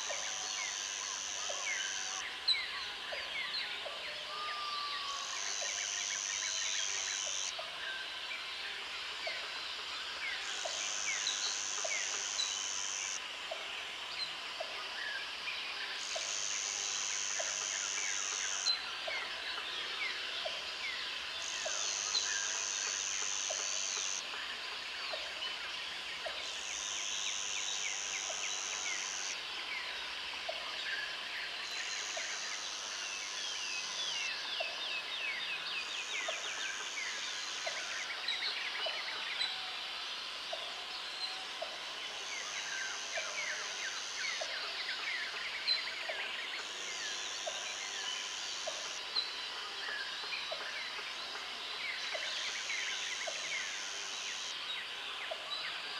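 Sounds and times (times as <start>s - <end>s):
high insect buzz: 5.2s - 7.5s, 10.3s - 13.2s, 16.0s - 18.8s, 21.4s - 24.3s, 26.4s - 29.4s.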